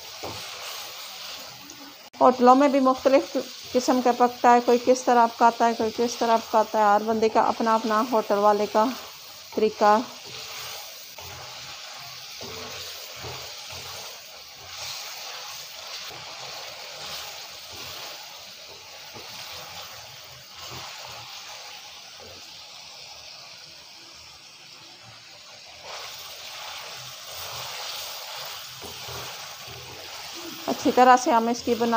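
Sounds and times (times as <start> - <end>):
wooden spatula stirring and scraping: 0.0 - 2.1, 5.5 - 22.4, 25.8 - 31.9
chicken sizzling in a pan: 0.0 - 31.9.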